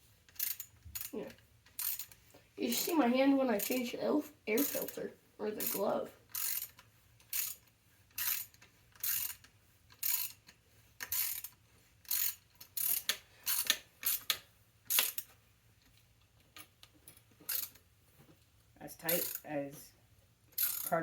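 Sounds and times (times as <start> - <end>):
ratchet wrench clicking: 0.3 - 2.9, 3.6 - 3.8, 4.6 - 4.9, 5.6 - 15.3, 17.4 - 17.8, 19.0 - 19.5, 20.5 - 21.0.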